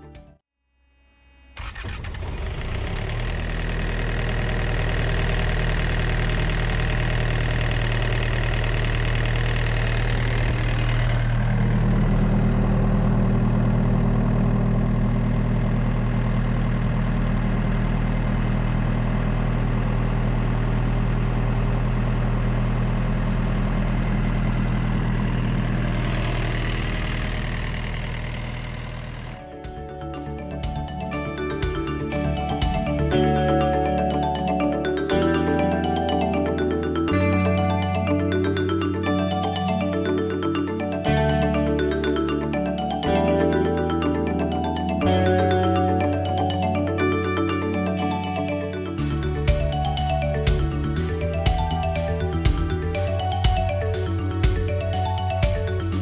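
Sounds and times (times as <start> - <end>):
small diesel engine running: 1.0 - 48.4, 49.0 - 56.0.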